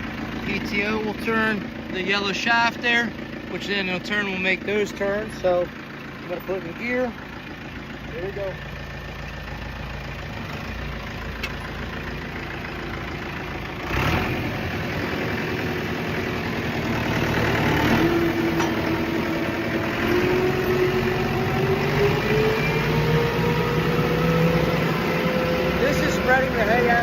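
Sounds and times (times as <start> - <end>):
tractor engine running: 0.0 - 27.0
machinery whine rising in pitch: 17.6 - 26.8.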